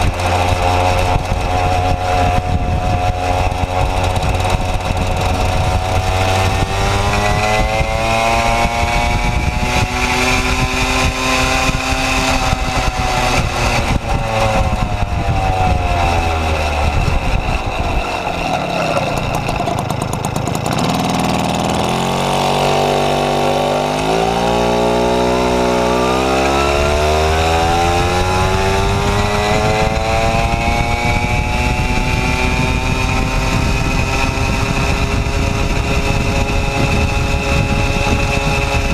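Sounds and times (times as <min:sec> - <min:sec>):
moped engine revving: 0:00.0 - 0:38.9.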